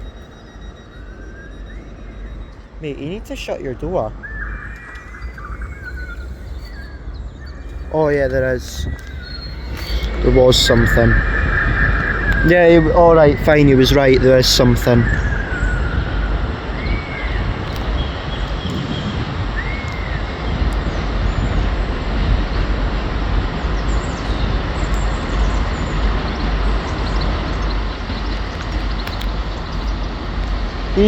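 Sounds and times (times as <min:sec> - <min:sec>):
faint squeaks: 0:00.0 - 0:16.1
train rumbling: 0:00.0 - 0:31.0.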